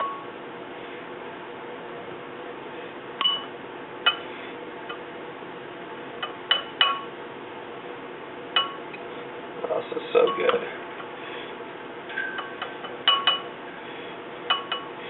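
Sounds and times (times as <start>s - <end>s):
utensil clinking against a bowl: 4.1s - 4.3s, 6.2s - 7.1s, 8.6s - 9.0s, 10.2s - 10.7s, 12.1s - 13.6s, 14.5s - 15.0s.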